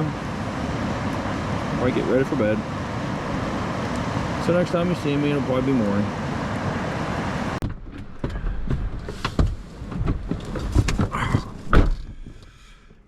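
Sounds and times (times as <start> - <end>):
river rushing: 0.0 - 7.6
knocks and clunks of handling: 7.6 - 12.6.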